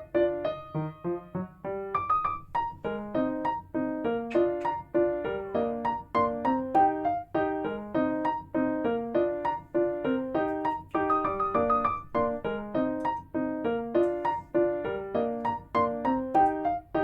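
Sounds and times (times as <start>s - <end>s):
piano playing broken chords: 0.0s - 17.0s.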